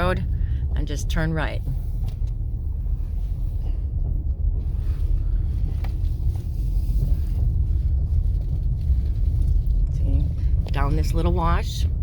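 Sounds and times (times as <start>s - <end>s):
vehicle driving on dirt road: 0.0s - 12.0s.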